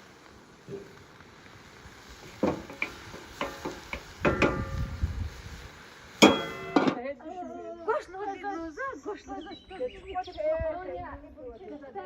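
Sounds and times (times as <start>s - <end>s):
kitchenware knocking and clinking: 6.2s - 7.0s.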